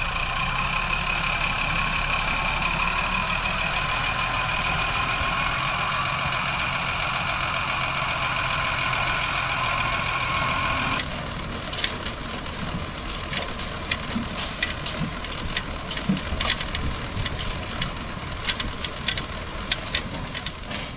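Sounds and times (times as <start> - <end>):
tractor engine with whine: 0.0 - 20.9
machinery clicks and clatters: 11.0 - 20.9.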